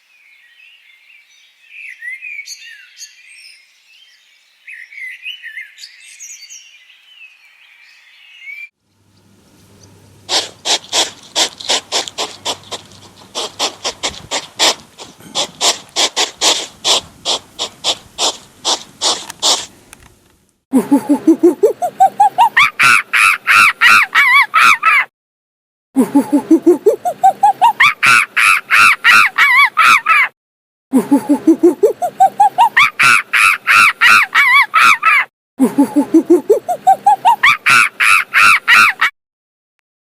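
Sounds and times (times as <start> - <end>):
small birds chirping: 1.8 - 20.1
frog croaking in pulses: 9.1 - 19.8.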